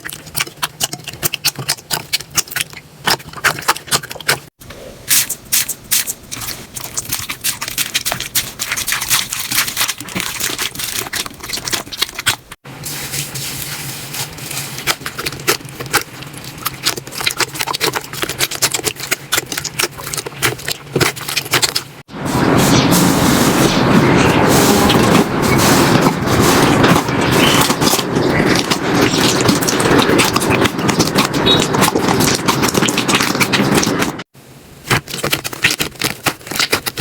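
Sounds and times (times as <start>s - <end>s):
slime crackling and popping: 14.8s - 22.0s, 25.5s - 34.2s, 34.8s - 37.0s.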